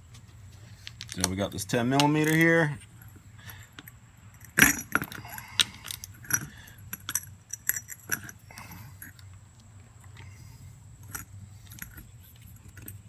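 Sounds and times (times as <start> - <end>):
metal wrench clinking: 0.8 - 9.2, 11.0 - 13.0.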